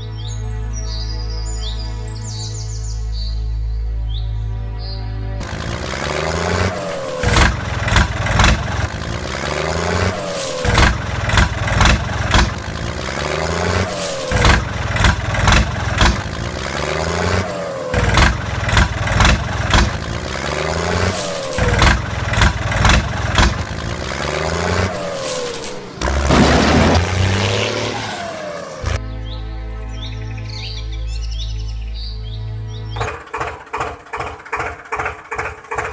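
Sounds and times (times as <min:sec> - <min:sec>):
engine knocks and clatter: 0:05.4 - 0:29.0, 0:32.9 - 0:35.9
heavy vehicle engine revving: 0:05.4 - 0:29.0, 0:32.9 - 0:35.9.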